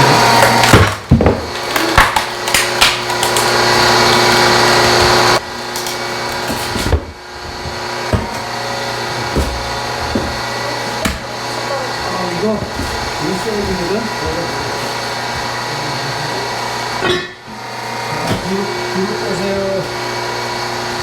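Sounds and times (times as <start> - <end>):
log splitter motor humming: 0.0 - 21.0
log cracking as it splits: 0.4 - 5.0.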